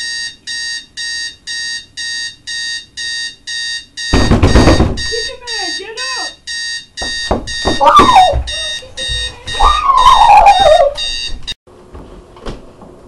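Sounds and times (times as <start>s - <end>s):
alarm clock beeping: 0.0s - 11.6s
whines falling in pitch: 7.3s - 11.4s.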